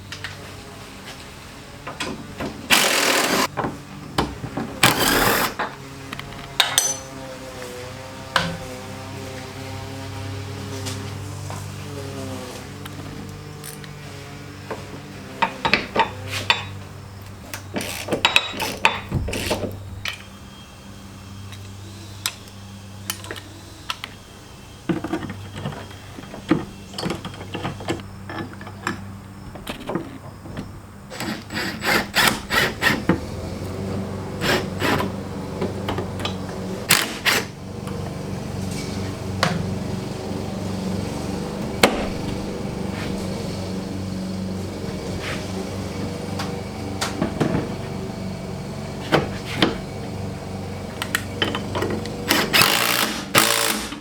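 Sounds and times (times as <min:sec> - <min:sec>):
metal tools clanking and knocking: 0:06.4 - 0:07.2, 0:15.4 - 0:16.8, 0:17.5 - 0:20.2, 0:24.9 - 0:31.4, 0:50.9 - 0:53.8.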